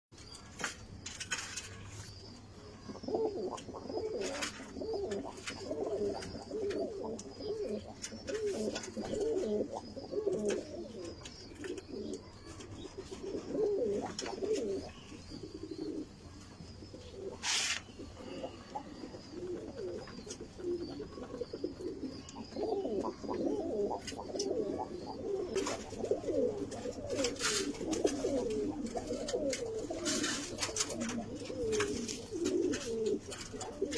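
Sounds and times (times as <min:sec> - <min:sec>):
pigeons cooing: 0:01.3 - 0:33.9.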